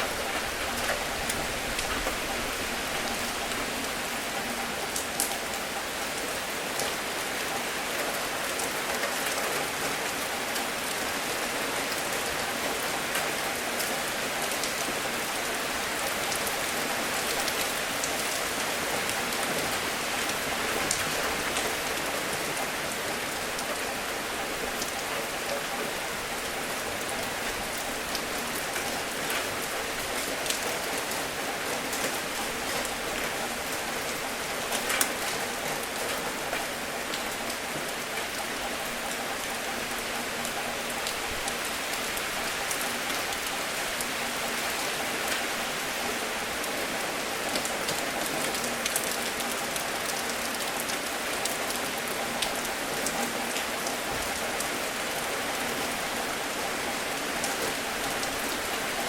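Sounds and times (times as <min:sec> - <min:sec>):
rain hiss on a surface: 0:00.0 - 0:59.0
raindrops ticking: 0:11.8 - 0:59.0.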